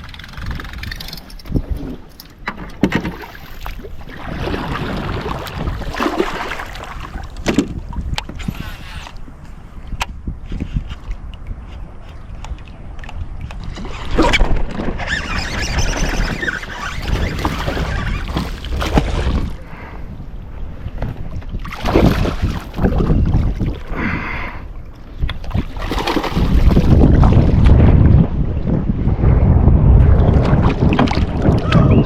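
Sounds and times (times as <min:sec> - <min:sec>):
water noise: 0:00.0 - 0:32.0
wind buffeting microphone: 0:00.0 - 0:32.0
heavy low rumble: 0:26.9 - 0:32.0.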